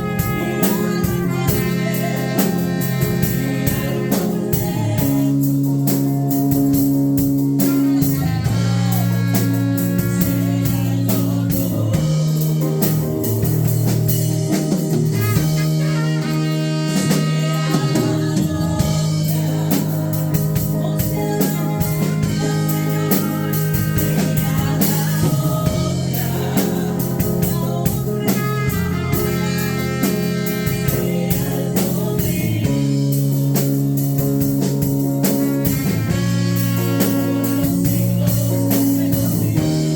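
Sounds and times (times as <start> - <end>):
people singing: 0.0 - 12.9, 15.1 - 33.9, 35.4 - 39.9
worship band playing: 0.0 - 39.9.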